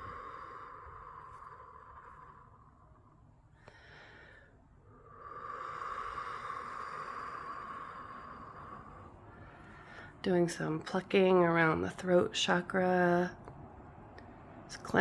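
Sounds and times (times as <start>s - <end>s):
woman's breathy exhales: 3.6s - 10.1s.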